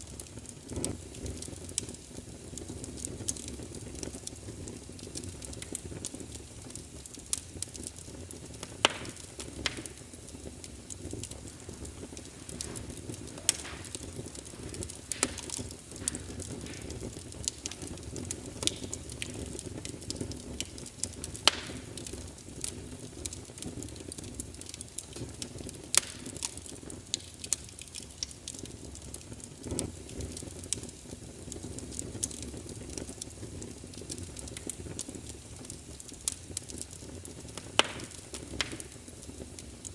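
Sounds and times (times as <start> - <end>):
fire crackling and popping: 0.0 - 39.9.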